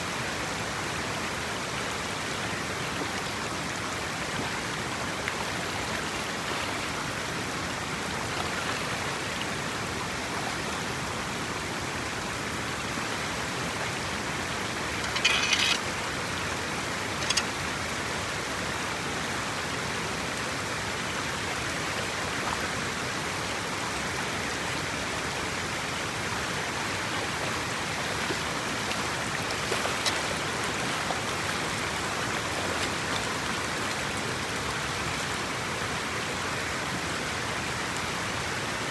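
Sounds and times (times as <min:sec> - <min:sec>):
water rushing: 0:00.5 - 0:38.9
splash or clatter: 0:15.0 - 0:15.9, 0:28.3 - 0:31.0.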